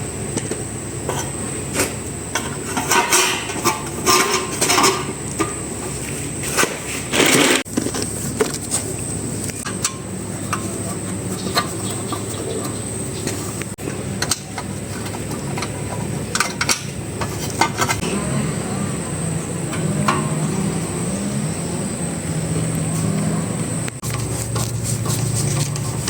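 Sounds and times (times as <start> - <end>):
steady low hum: 0.0 - 26.0
metal tools clinking: 1.1 - 5.5
metal rattle: 1.1 - 8.6, 24.0 - 26.0.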